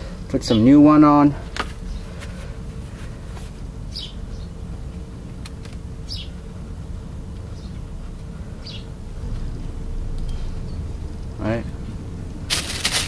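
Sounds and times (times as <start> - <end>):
faint constant hum: 0.0 - 13.0
low background rumble: 0.0 - 13.0
bird chirping: 3.9 - 4.6, 6.0 - 6.4, 8.6 - 8.9.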